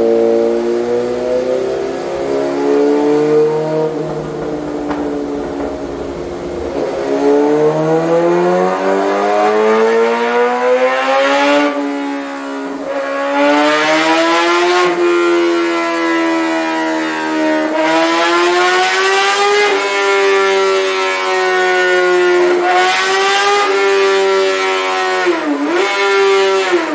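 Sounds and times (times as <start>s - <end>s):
motorcycle engine revving: 0.0s - 21.1s.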